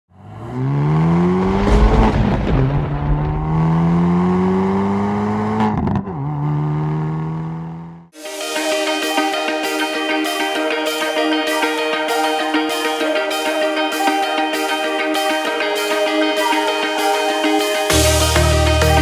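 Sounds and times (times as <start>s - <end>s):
car engine accelerating: 0.1s - 8.1s
music: 8.2s - 19.0s.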